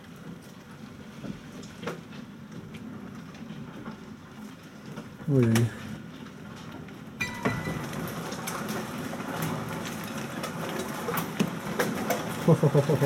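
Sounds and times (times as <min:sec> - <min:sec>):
hail and rain pelting: 0:00.0 - 0:13.0.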